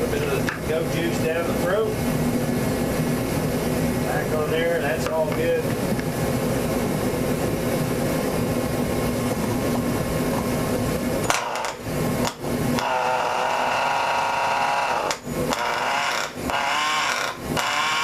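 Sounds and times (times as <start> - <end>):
electric starter spinning engine: 11.0 - 18.0
small engine running in rough bursts: 11.3 - 18.0.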